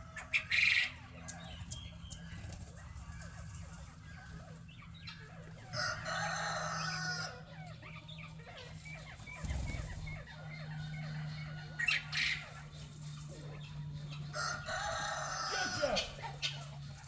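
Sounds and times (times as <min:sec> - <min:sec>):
hens clucking: 0:00.0 - 0:17.0
steady low hum: 0:00.0 - 0:17.0
rooster crowing: 0:05.6 - 0:07.6, 0:14.3 - 0:16.4.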